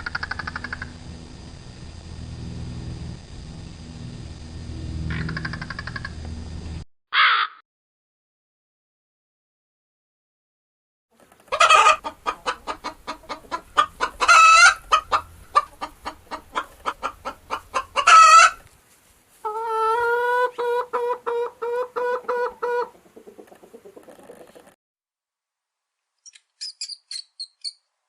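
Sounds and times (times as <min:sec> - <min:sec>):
chicken call with quick pulses: 0:07.1 - 0:07.6, 0:11.5 - 0:15.2, 0:16.5 - 0:18.6
chicken squawking: 0:07.2 - 0:07.6, 0:11.5 - 0:18.7, 0:19.4 - 0:24.5
chicken clucking: 0:11.2 - 0:18.7, 0:19.4 - 0:24.8.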